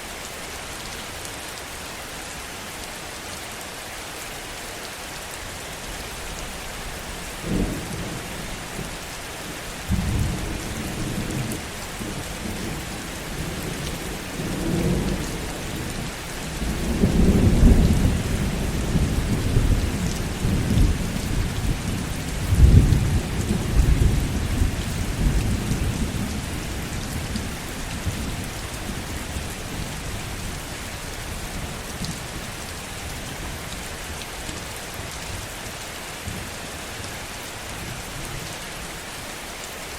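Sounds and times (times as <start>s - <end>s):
heavy rain: 0.0s - 39.9s
low roll of thunder: 9.8s - 29.1s.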